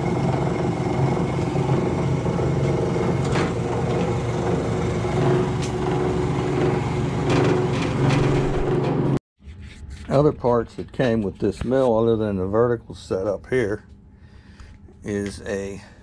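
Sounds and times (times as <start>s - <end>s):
milling machine humming: 0.0s - 9.2s.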